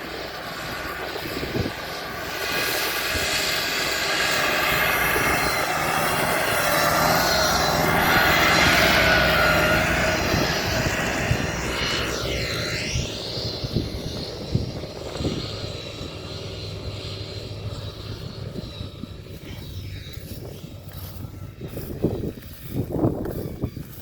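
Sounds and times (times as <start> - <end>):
motor engine passing by: 0.0 - 24.0.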